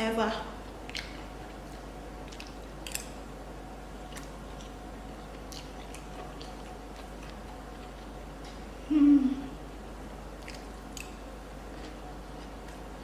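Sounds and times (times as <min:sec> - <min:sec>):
person chewing food: 0:00.7 - 0:03.2, 0:04.0 - 0:08.7, 0:10.4 - 0:13.0
small crunches and mouth clicks: 0:00.7 - 0:03.2, 0:10.4 - 0:12.9.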